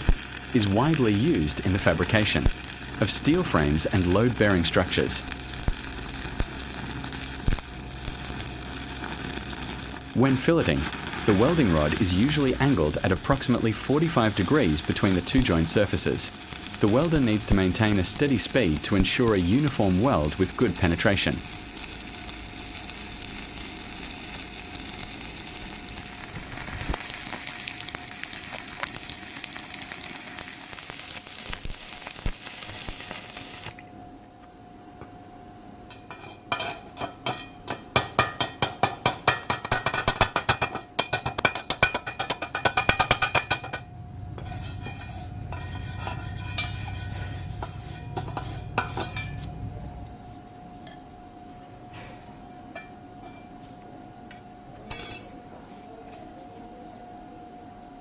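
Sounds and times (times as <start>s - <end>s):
welding arc crackling: 0.0s - 33.8s, 36.5s - 50.6s
rapid metallic strikes and scrapes: 36.1s - 49.8s
low hum: 42.8s - 53.4s.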